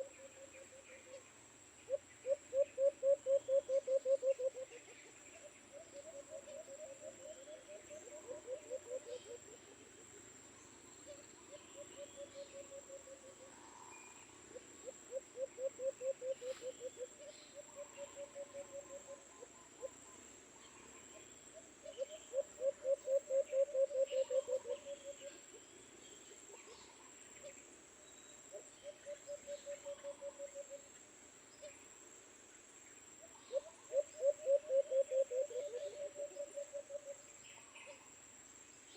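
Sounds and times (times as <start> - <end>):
faint bird chirps: 0.0 - 32.0, 32.8 - 38.9
dove cooing: 1.9 - 5.0, 5.7 - 9.6, 14.8 - 20.0, 21.8 - 25.3, 28.8 - 30.8, 33.5 - 37.2.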